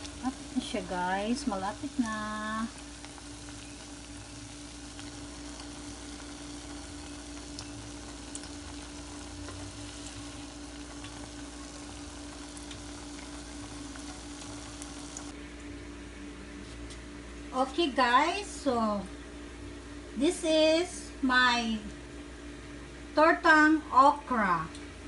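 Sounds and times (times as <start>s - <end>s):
fritters sizzling in hot oil: 0.0s - 15.4s.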